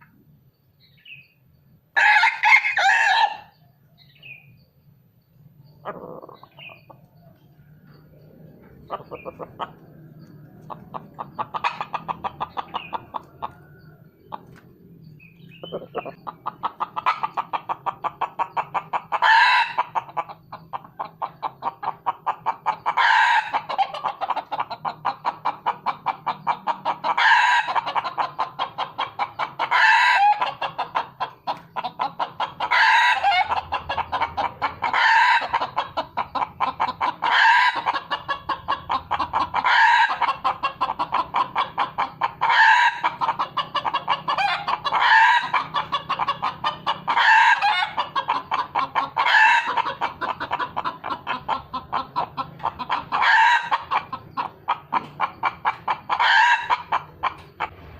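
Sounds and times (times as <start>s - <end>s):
junglefowl crowing: 2.0s - 3.6s, 5.8s - 6.9s, 15.5s - 20.4s, 21.0s - 25.6s, 26.5s - 57.8s
junglefowl clucking: 5.6s - 57.9s.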